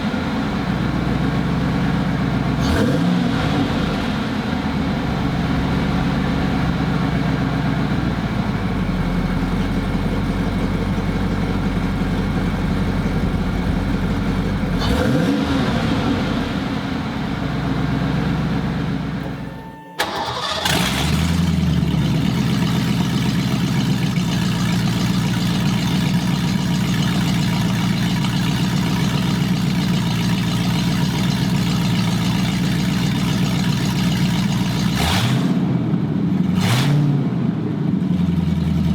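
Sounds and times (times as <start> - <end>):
car engine idling on open headers: 0.0 - 35.0, 37.4 - 38.9
engine revving: 2.0 - 6.8, 14.6 - 19.3, 20.0 - 38.9.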